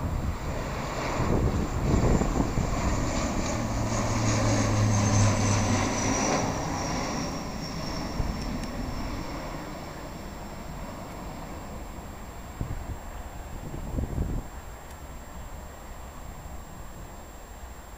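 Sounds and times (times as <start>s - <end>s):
low hum: 0.0s - 13.1s
airliner engines rumbling: 0.0s - 17.9s
high engine whine: 0.0s - 17.9s.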